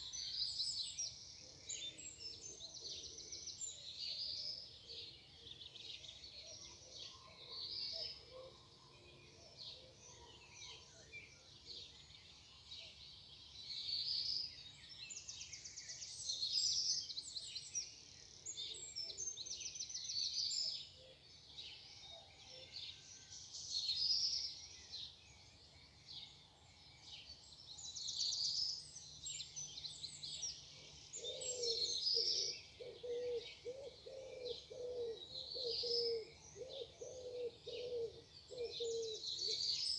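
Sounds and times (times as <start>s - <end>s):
songbirds singing: 0.0s - 39.9s
pigeon cooing: 32.9s - 39.1s.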